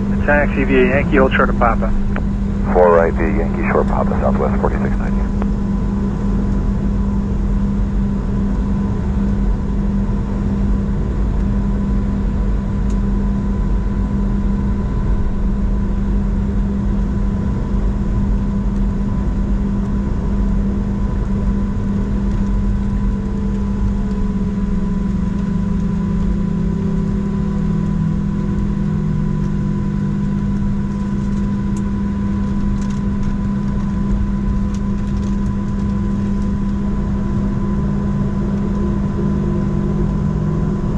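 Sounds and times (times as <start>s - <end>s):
jet engines idling: 0.0s - 5.7s.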